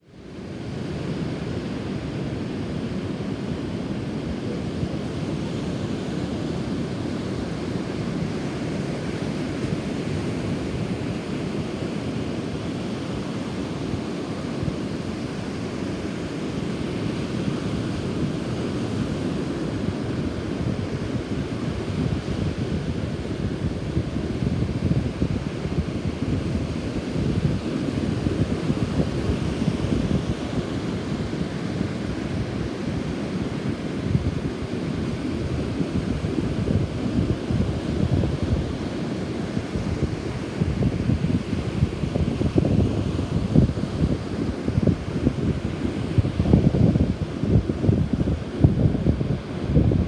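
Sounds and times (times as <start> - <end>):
rough sea surf: 0.2 - 50.0
strong wind buffeting microphone: 13.2 - 50.0.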